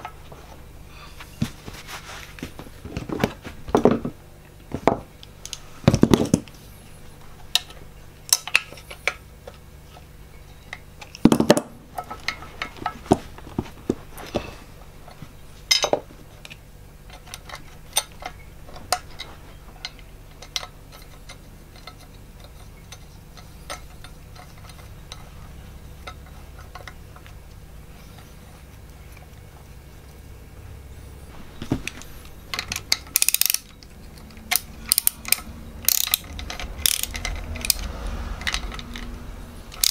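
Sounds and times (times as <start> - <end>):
socket ratchet clicking: 32.6 - 39.9.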